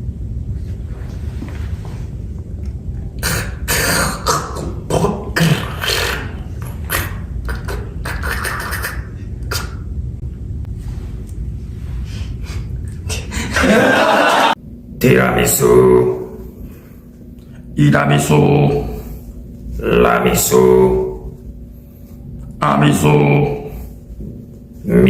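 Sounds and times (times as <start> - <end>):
beatboxing mouth percussion: 3.1 - 10.0.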